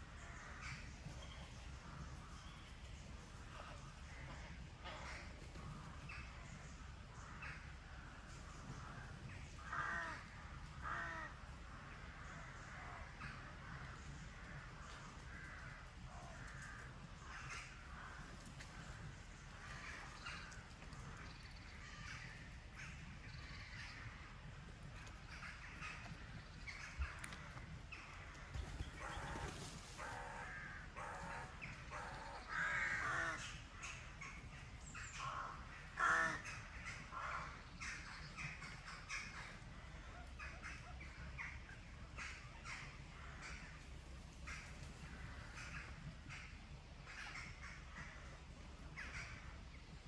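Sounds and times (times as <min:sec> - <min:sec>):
faint steady background noise: 0:00.0 - 0:50.0
harsh crow-like bird calls: 0:08.8 - 0:11.4, 0:12.1 - 0:24.3, 0:25.1 - 0:34.3, 0:35.0 - 0:43.8.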